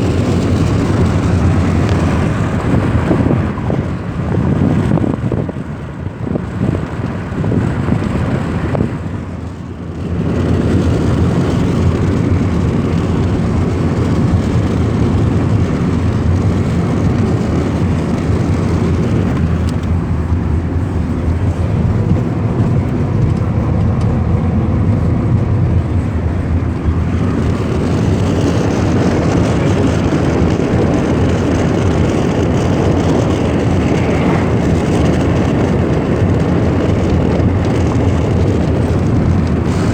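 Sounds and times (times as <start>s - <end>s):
car engine: 0.0s - 39.9s
wind noise: 0.0s - 39.9s
tyre noise: 10.4s - 39.9s.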